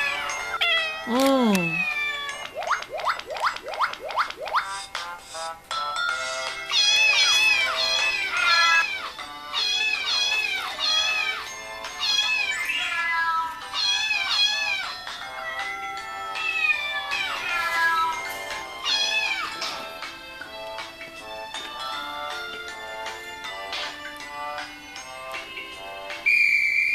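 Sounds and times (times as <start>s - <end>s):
cat meowing: 0.0s - 2.4s, 6.7s - 11.4s, 12.0s - 15.6s, 16.3s - 19.8s
background music: 0.0s - 26.3s.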